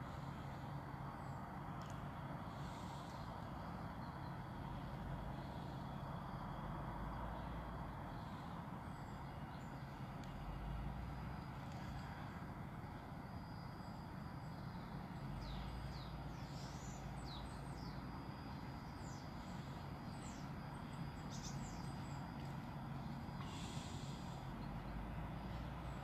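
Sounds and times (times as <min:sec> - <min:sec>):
steady low rumble: 0:00.0 - 0:26.0
small birds chirping: 0:14.4 - 0:26.0.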